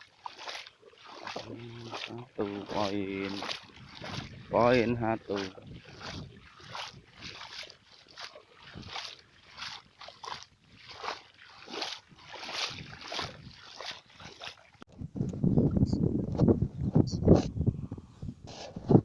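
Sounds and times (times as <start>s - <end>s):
wading through shallow water: 0.0s - 15.0s.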